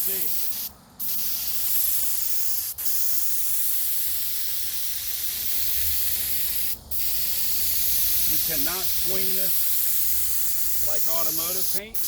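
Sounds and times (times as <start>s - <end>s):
paint spray gun hissing: 0.0s - 12.0s.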